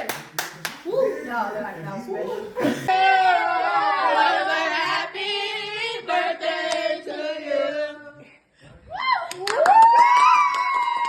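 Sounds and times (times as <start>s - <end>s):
group of voices singing: 2.5s - 8.8s.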